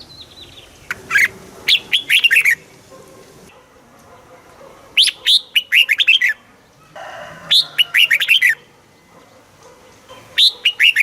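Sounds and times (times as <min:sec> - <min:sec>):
bird singing whistled notes: 0:00.0 - 0:02.6, 0:10.4 - 0:11.0.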